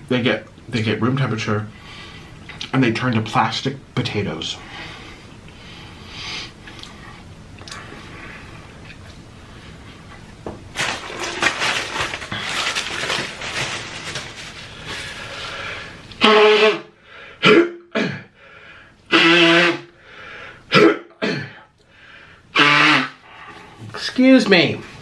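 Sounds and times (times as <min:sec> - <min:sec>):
man coughing hard: 0:17.4 - 0:18.3, 0:20.7 - 0:21.7
rough crackly throat noise: 0:22.6 - 0:23.2.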